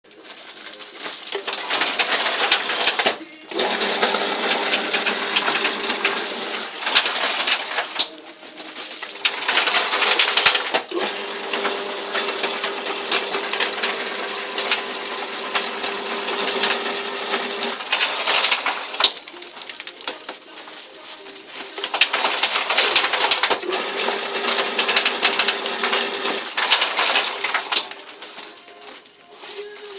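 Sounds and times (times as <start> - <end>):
machine rattling whir: 1.4 - 8.1, 9.2 - 19.1, 21.9 - 28.2.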